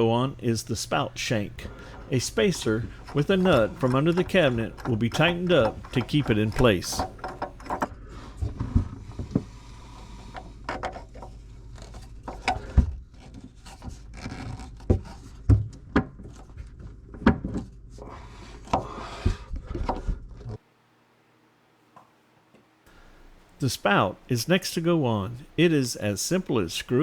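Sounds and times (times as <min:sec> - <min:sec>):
low steady hum: 0:00.0 - 0:13.6
faucet parts knocking and clicking: 0:01.7 - 0:07.9.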